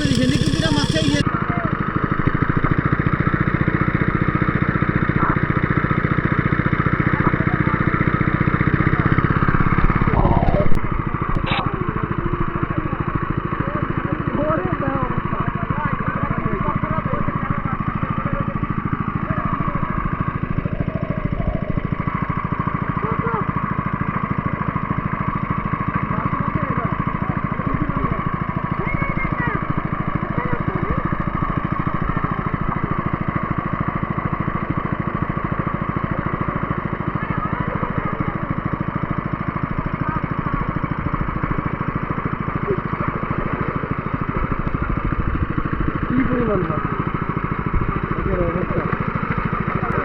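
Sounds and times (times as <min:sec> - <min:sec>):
faint voices: 0:00.0 - 0:01.7
small engine running: 0:00.0 - 0:50.0.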